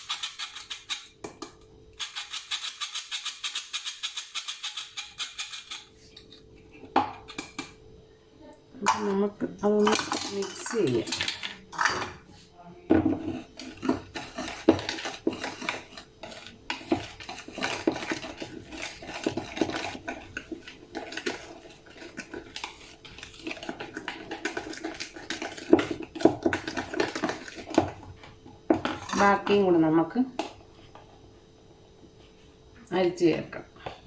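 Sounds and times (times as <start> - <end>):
utensil scraping a mixing bowl: 0.0 - 1.2, 1.9 - 7.6, 9.8 - 30.0.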